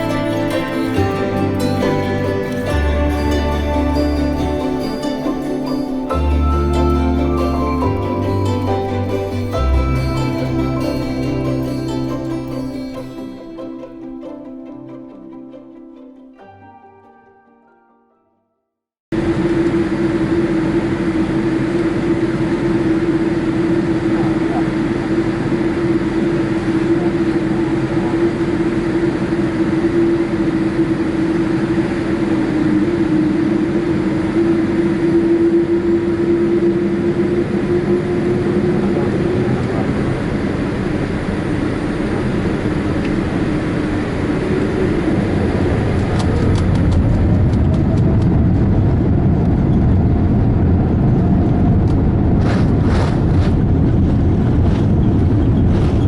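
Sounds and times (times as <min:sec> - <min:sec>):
aircraft engine hum in cabin: 0:19.2 - 0:56.0.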